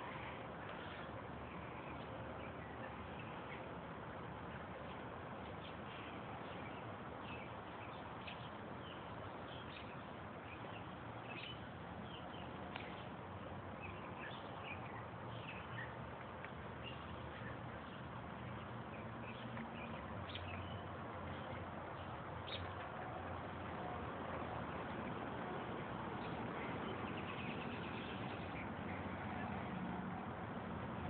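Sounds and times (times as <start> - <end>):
outdoor background noise: 0.0 - 31.0
small birds chirping: 4.4 - 22.9, 24.9 - 29.8.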